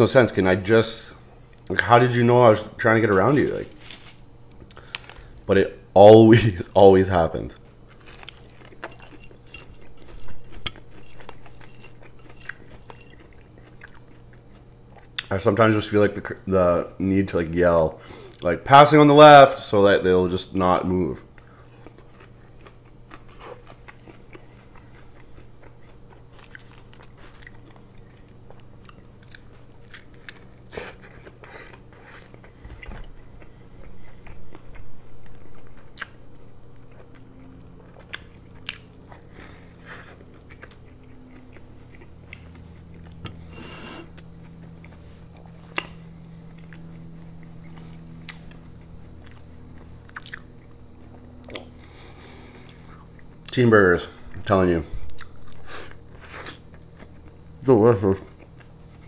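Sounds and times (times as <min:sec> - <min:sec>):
chewing and biting a burger: 0:07.8 - 0:15.3, 0:21.3 - 0:53.6.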